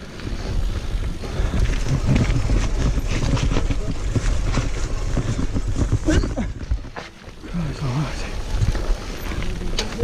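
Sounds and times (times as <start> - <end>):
bike tyres rumbling over ground: 0.0 - 10.0
bike clattering and knocking: 1.6 - 7.3.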